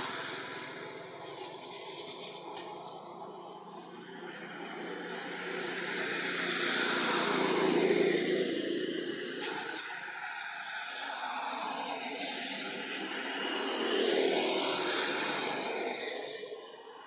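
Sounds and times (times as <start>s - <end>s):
vehicle passing by: 4.0s - 16.7s.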